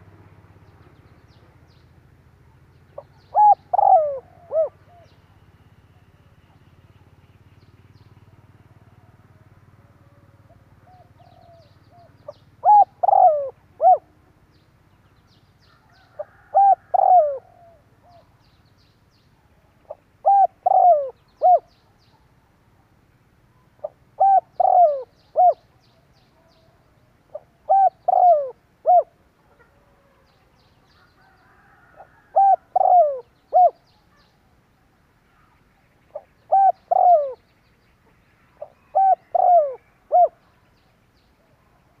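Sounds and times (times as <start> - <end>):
dove cooing: 3.0 - 5.5, 8.3 - 14.4, 15.8 - 18.4, 19.8 - 22.3, 23.6 - 30.3, 31.0 - 34.3, 35.3 - 37.5, 38.6 - 40.5.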